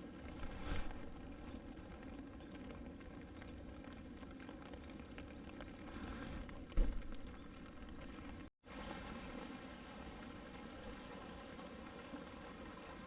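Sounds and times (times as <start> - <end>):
dull thump: 6.7 - 7.4.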